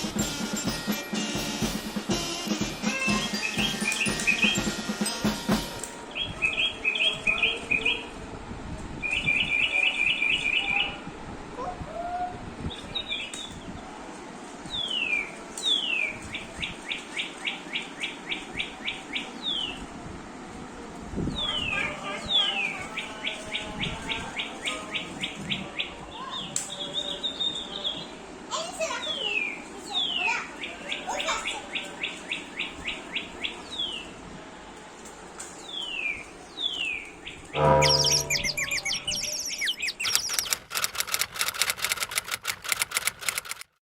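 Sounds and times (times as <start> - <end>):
toy bird chirping and whistling: 2.3 - 5.6, 37.6 - 40.5
brief low hum: 37.6 - 39.4.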